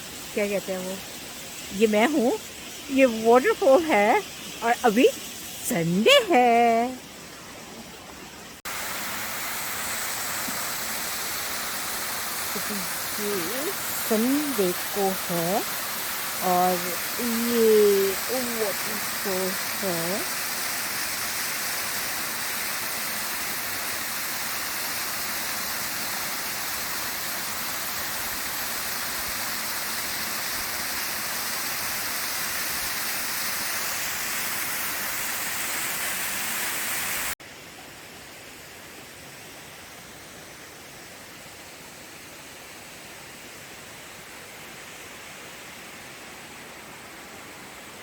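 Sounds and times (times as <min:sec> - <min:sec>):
waterfall roaring: 0:08.6 - 0:37.4.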